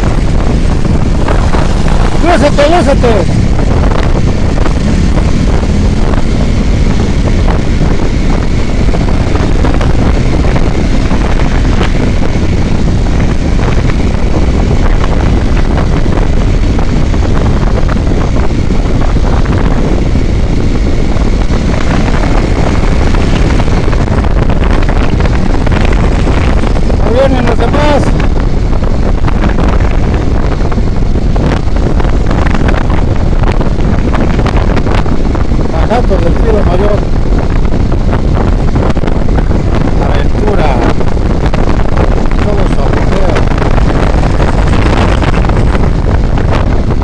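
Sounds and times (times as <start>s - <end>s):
engine and road noise: 0.0s - 47.0s
wind buffeting microphone: 0.0s - 47.0s.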